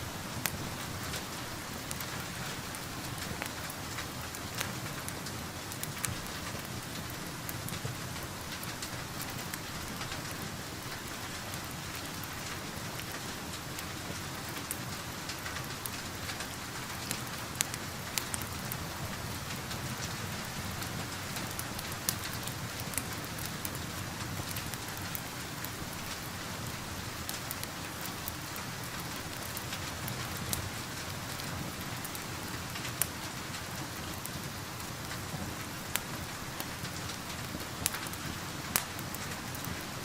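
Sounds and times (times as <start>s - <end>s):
steady rain: 0.0s - 40.0s
wood fire crackling: 0.0s - 40.0s.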